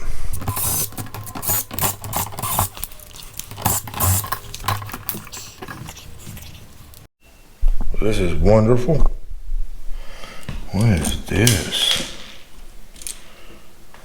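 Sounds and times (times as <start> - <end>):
hands and tools handling things: 0.0 - 7.1.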